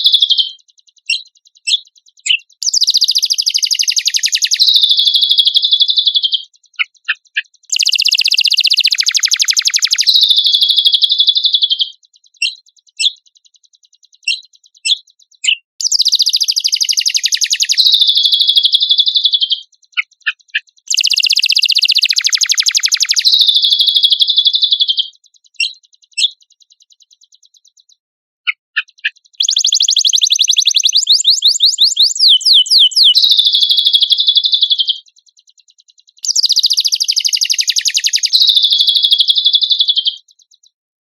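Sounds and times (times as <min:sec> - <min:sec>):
bird sharp chirps: 0:00.0 - 0:40.8
bird buzzy trills: 0:15.8 - 0:19.3, 0:28.8 - 0:34.9, 0:36.2 - 0:39.8.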